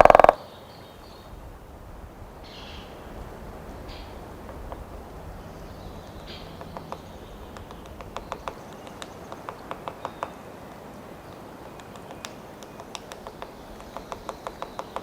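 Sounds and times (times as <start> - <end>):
woodpecker pecking wood: 0.0 - 0.4, 3.8 - 15.0.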